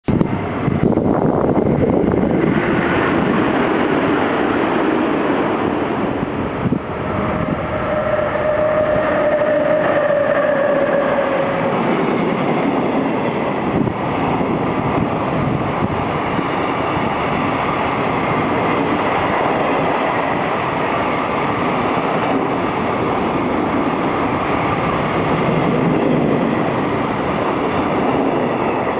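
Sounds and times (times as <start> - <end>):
train running on rails: 0.0 - 28.9
held tone: 6.9 - 12.0.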